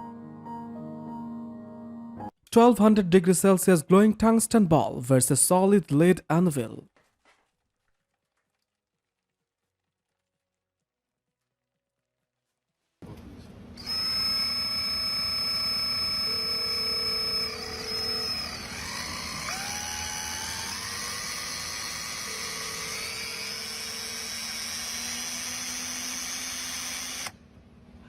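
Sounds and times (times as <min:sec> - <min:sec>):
machine whine: 0:13.1 - 0:27.4.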